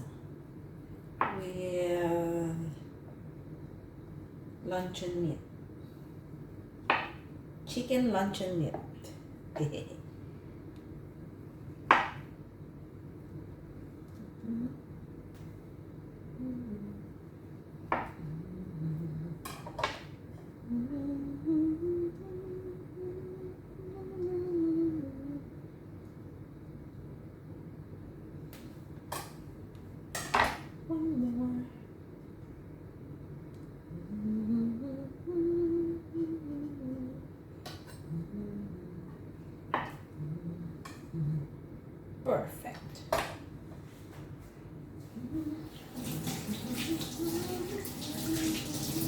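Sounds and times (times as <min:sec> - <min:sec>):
person humming: 0:14.2 - 0:15.0, 0:16.3 - 0:17.2, 0:18.2 - 0:19.5, 0:20.6 - 0:25.5, 0:33.9 - 0:37.3, 0:38.0 - 0:39.2, 0:40.1 - 0:41.6, 0:45.1 - 0:45.8, 0:46.6 - 0:49.0.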